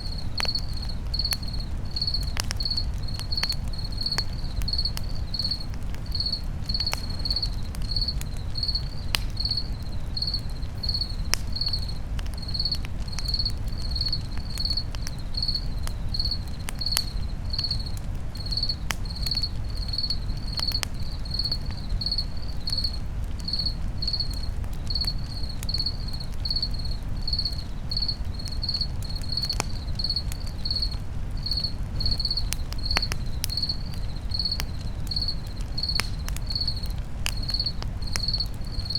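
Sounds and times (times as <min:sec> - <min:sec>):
campfire crackling: 0:00.0 - 0:38.9
crickets chirping: 0:00.0 - 0:38.9.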